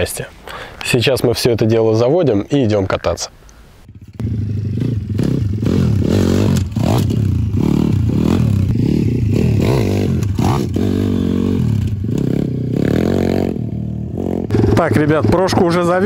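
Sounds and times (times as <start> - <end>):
motorbike engine revving: 3.9 - 16.0.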